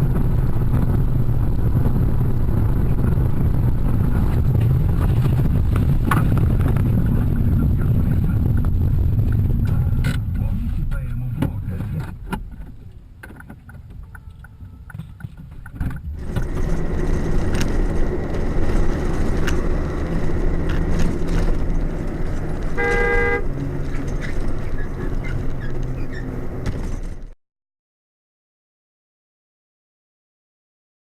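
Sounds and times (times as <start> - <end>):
road traffic: 0.0 - 27.4
car horn honking: 22.7 - 23.6.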